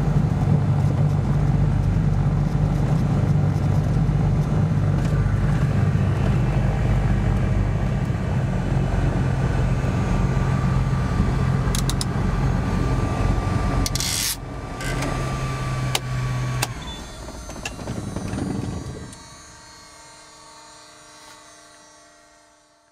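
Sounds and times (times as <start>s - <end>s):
steady whine: 0.0s - 22.9s
twin piston aircraft engines: 0.0s - 22.9s.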